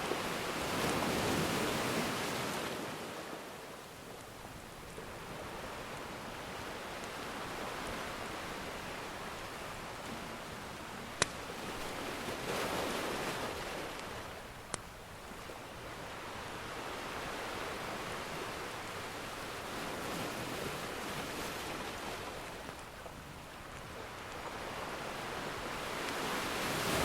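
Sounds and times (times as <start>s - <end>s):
ocean surf: 0.0s - 27.0s
wood fire popping: 11.2s - 11.9s.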